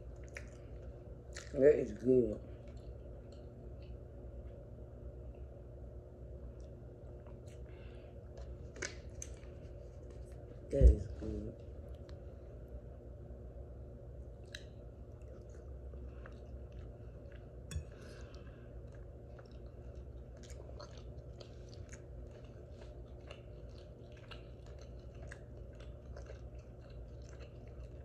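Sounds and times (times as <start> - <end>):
person chewing food: 0.0 - 1.5, 6.4 - 10.5, 14.2 - 28.0
steady low hum: 0.0 - 28.0
wet mouth clicks and smacks: 14.4 - 15.6.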